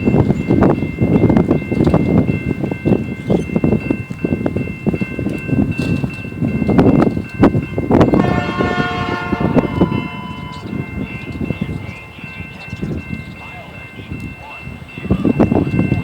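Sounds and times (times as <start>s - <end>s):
train rumbling past: 0.0s - 16.0s
train horn: 8.1s - 12.1s.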